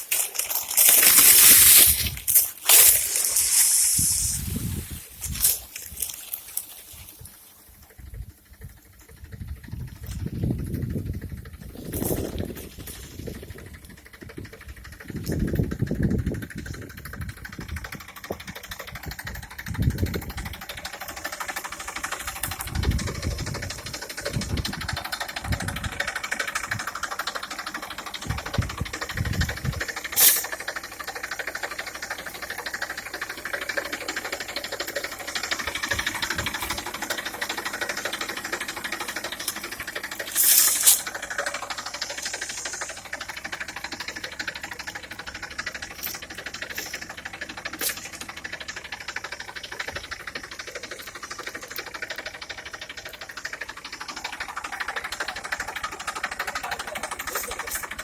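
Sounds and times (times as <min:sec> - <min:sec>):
tractor engine clattering: 0:00.0 - 0:58.0
low rumbling bursts: 0:08.0 - 0:27.1, 0:28.1 - 0:30.8.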